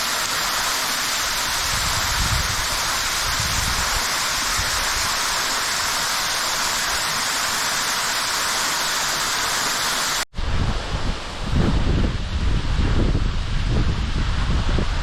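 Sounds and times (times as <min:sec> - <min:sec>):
waterfall rushing: 0:00.0 - 0:10.2
low gusty rumble: 0:10.4 - 0:15.0.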